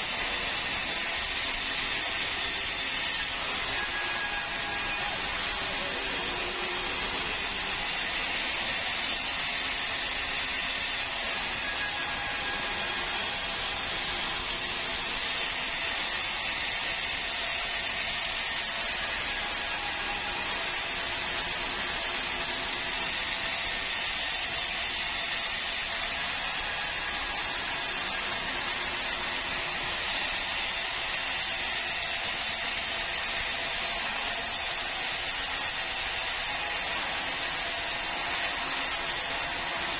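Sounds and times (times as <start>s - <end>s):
sawmill saw cutting log: 0.0s - 39.9s.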